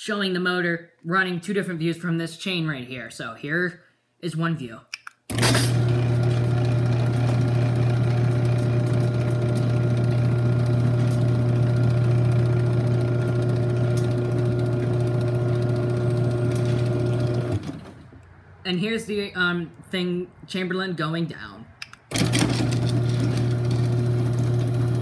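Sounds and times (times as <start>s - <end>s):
garage door opener motor hum: 5.3s - 18.2s, 22.1s - 25.0s.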